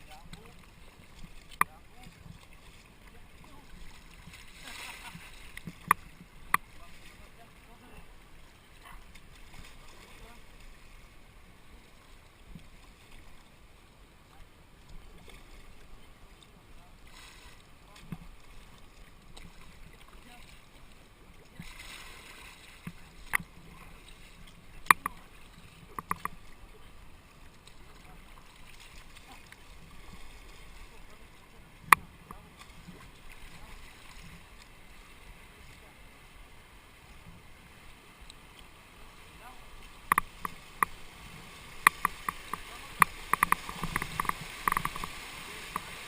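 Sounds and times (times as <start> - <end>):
water washing: 0.0 - 11.8, 39.3 - 46.0
water rushing: 0.0 - 46.0
paddles knocking on boat: 41.8 - 45.9.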